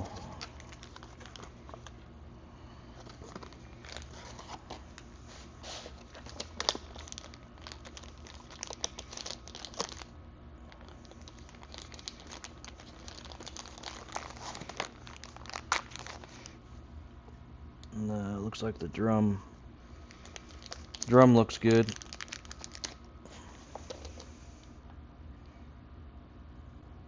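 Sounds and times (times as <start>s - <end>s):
packaging crinkling: 0.0s - 2.0s, 3.0s - 16.6s, 20.0s - 23.1s.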